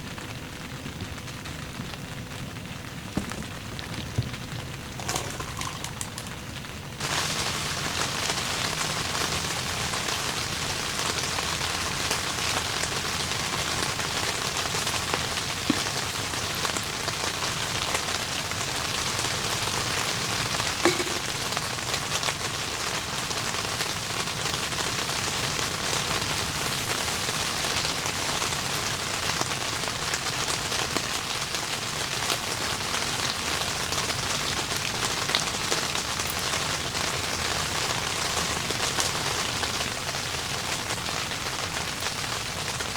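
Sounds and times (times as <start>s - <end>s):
heavy rain falling: 0.0s - 42.9s
single loud raindrops: 3.2s - 6.6s, 20.8s - 21.8s.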